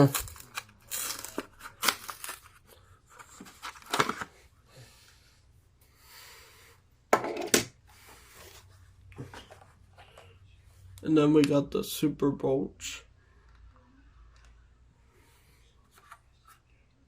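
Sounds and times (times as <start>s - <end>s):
packaging crinkling and rustling: 0.0s - 4.4s.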